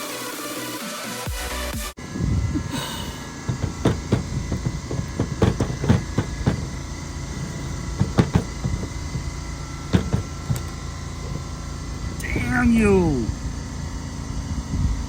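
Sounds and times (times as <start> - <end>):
hand tools knocking and clicking: 3.4 - 11.5.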